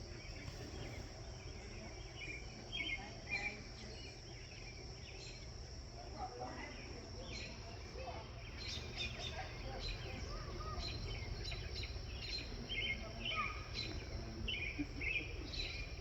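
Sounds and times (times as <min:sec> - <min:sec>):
insects droning: 0:00.0 - 0:16.0
bird chirps: 0:08.4 - 0:16.0.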